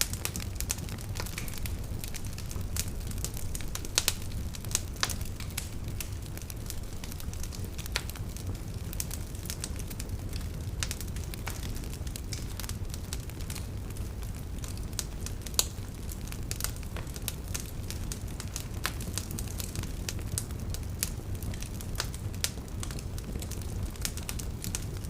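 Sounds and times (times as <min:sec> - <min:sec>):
steady low rumble: 0:00.0 - 0:09.6
wood fire crackling and popping: 0:00.0 - 0:25.0.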